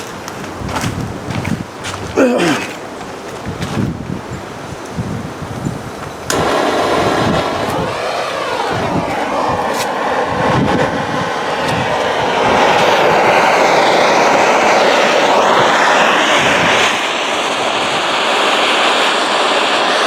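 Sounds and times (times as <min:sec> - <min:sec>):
wind buffeting microphone: 0:00.0 - 0:20.0
butane torch hissing: 0:06.2 - 0:20.0.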